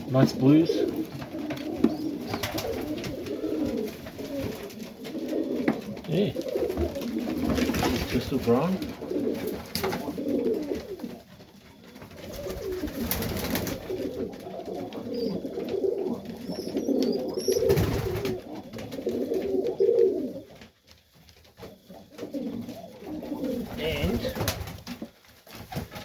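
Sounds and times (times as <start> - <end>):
pigeons cooing: 0.0 - 26.0.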